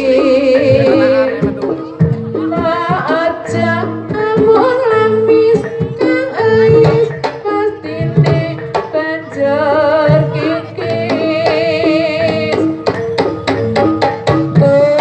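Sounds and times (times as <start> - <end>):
held instrumental notes: 0.0 - 15.0
woman singing with wavering pitch: 0.0 - 15.0.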